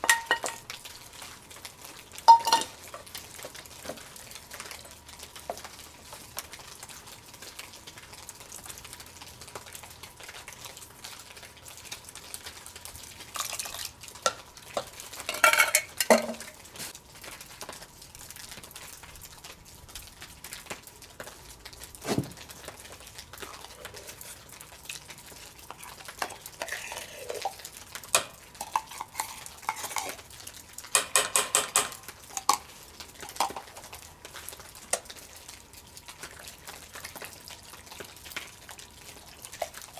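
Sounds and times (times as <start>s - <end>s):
metal spoon scraping a pot: 0.0s - 0.6s, 2.3s - 2.8s, 15.2s - 16.6s, 23.5s - 24.6s, 25.8s - 30.3s, 31.0s - 32.7s.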